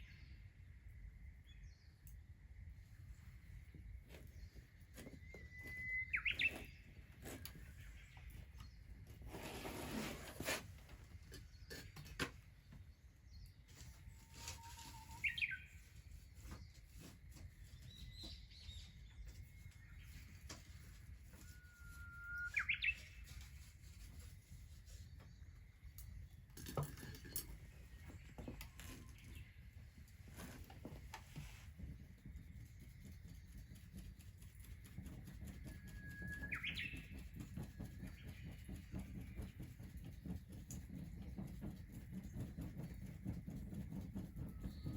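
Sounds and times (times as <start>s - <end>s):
birds chirping: 2.8s - 9.9s, 10.9s - 23.5s, 24.2s - 44.9s
thin high whistle: 14.1s - 15.4s, 21.4s - 23.0s.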